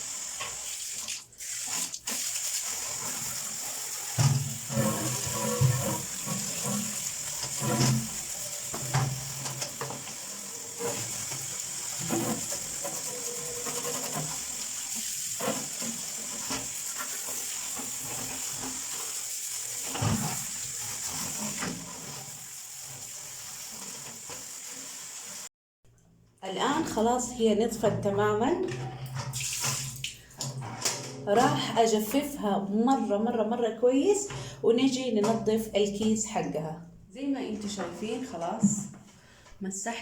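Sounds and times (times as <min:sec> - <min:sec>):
water running and splashing: 0:00.0 - 0:25.5.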